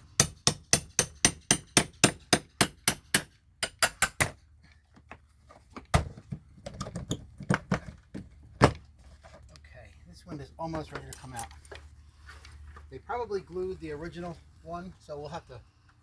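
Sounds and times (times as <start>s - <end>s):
hammer striking metal nail puller: 0.2s - 4.4s.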